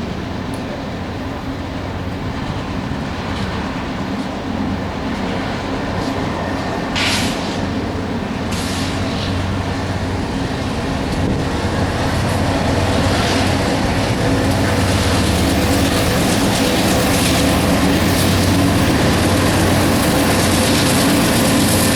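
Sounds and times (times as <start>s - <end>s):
diesel locomotive engine drone: 0.0s - 21.9s
brief hiss: 7.0s - 7.6s.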